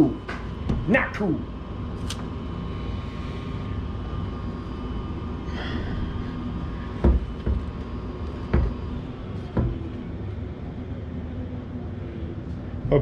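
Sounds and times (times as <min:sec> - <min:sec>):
steady low hum: 0:00.0 - 0:13.0
dull knocks: 0:00.6 - 0:00.9, 0:07.0 - 0:07.8, 0:08.4 - 0:10.0.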